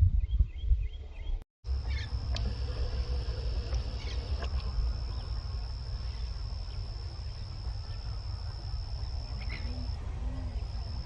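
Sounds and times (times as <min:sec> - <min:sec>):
low rumble: 0:01.7 - 0:11.0
faint bird call: 0:01.8 - 0:05.4, 0:07.6 - 0:10.0.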